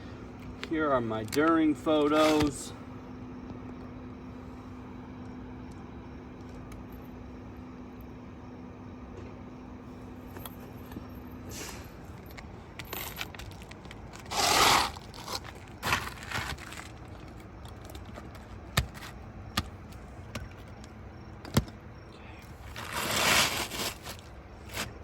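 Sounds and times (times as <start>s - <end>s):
scraping on roof shingles: 13.3s - 20.8s, 22.7s - 25.0s.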